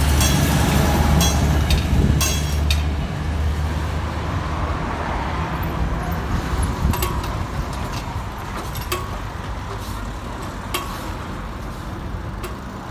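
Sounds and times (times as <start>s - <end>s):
wheels clicking over rail joints: 0.0s - 4.0s, 5.5s - 12.9s
train rumble: 0.0s - 12.9s.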